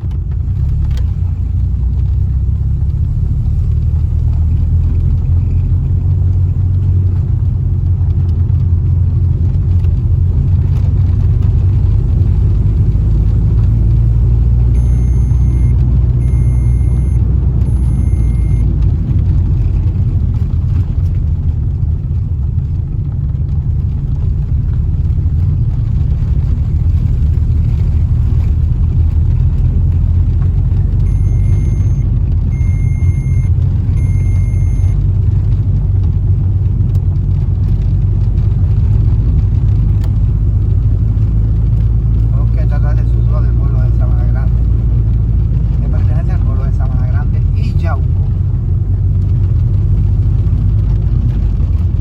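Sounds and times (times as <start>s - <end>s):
car engine and tyre rumble: 0.0s - 52.0s
short high electronic beeps: 14.8s - 18.7s, 31.1s - 35.0s.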